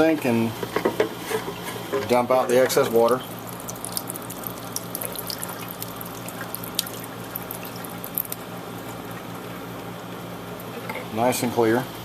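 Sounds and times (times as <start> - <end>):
water trickling into a sink: 1.4 - 11.2
water drips and splashes: 2.7 - 10.9.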